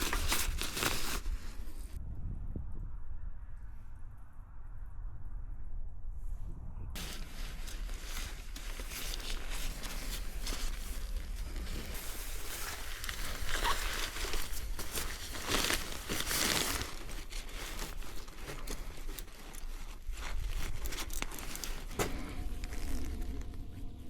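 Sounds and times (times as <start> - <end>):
tarp rustling and crinkling: 0.0 - 2.0, 7.0 - 24.0.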